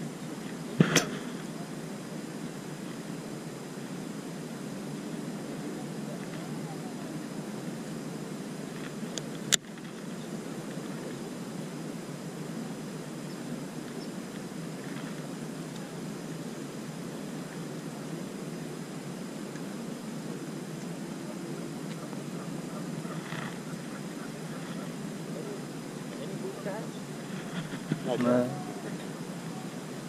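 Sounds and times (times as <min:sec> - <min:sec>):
low outdoor rumble: 0:00.0 - 0:30.0
sharp click: 0:00.8 - 0:01.2.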